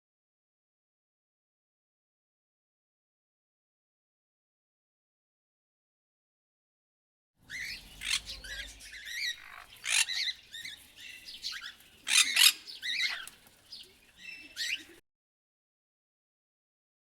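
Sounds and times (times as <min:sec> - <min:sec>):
bird chirps and squawks: 0:07.5 - 0:13.3, 0:14.2 - 0:15.0.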